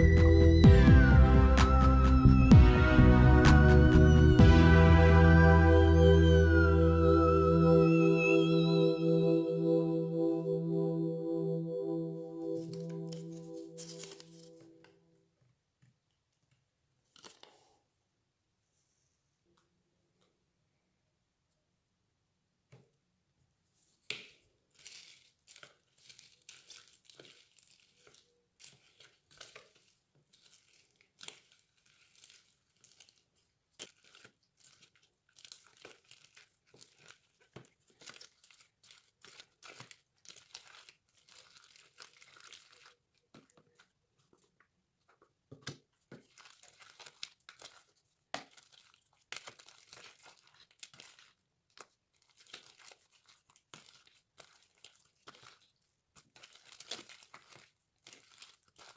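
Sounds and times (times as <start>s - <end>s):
slime crackling: 24.8s - 43.2s, 46.2s - 58.9s.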